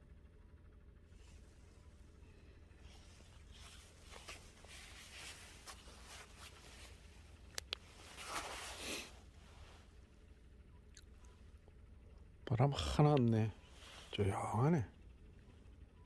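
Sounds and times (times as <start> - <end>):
handling rustling and scraping: 2.8 - 10.0
swishing rustle: 3.0 - 7.2, 7.8 - 9.6.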